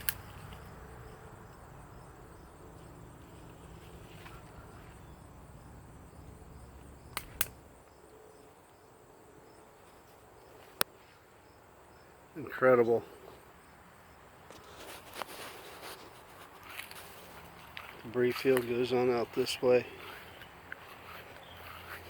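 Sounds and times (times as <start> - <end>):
sharp clicks: 0.0 - 0.7, 7.0 - 7.7
insects chirping: 0.0 - 22.0.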